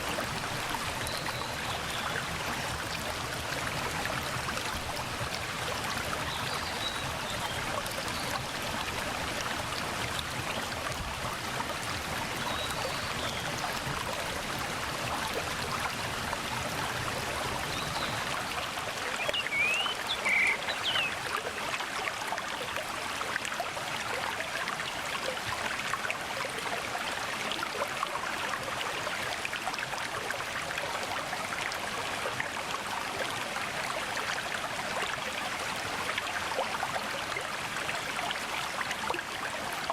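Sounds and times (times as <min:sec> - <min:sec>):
stream flowing over rocks: 0:00.0 - 0:39.9
bird chirping: 0:19.4 - 0:21.1.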